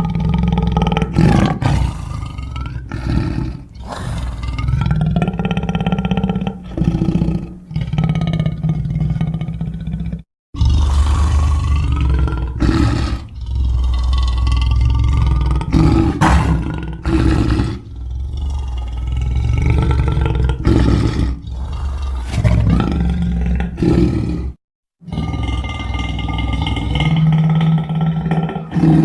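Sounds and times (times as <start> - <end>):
deep monster roar: 0.0 - 29.0.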